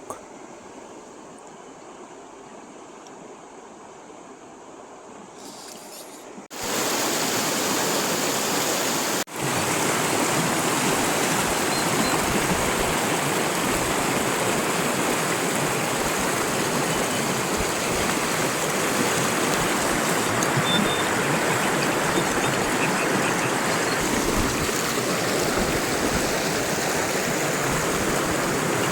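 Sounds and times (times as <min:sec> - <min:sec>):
river water rushing over riffle: 0:06.5 - 0:28.9.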